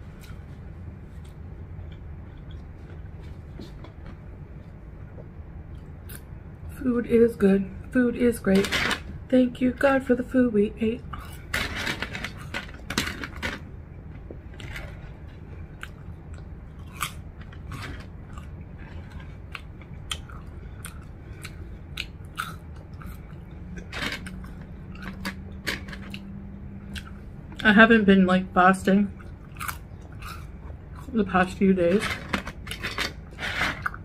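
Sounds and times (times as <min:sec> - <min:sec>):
chewing crisp fries: 0:01.1 - 0:04.8, 0:14.2 - 0:27.6, 0:29.1 - 0:31.6.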